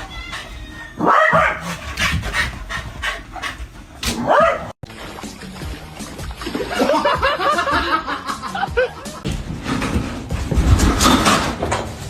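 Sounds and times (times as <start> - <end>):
dog panting: 1.6 - 4.0.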